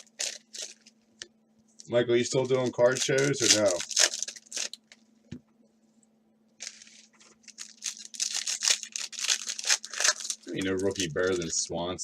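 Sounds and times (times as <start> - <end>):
card wrappers tearing: 0.0 - 0.9, 2.4 - 4.8, 6.6 - 11.6.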